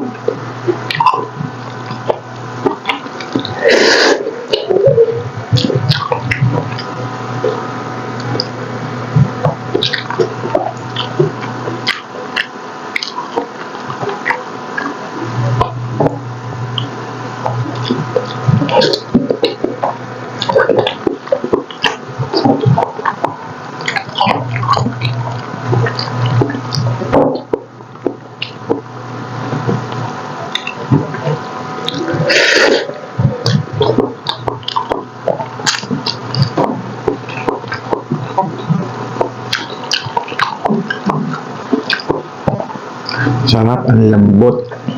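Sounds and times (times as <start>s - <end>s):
wet chewing and lip-smacking: 0.0s - 43.5s.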